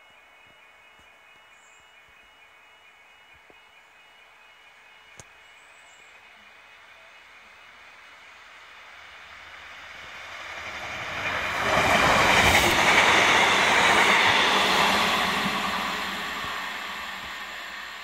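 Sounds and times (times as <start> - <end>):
diesel train passing: 6.1 - 18.0.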